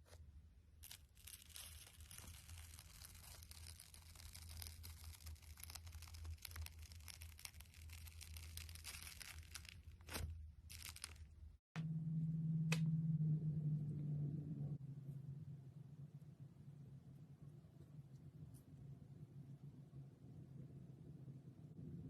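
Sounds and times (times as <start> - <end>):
slime crackling and popping: 0.8 - 11.2
steady low hum: 11.2 - 22.0.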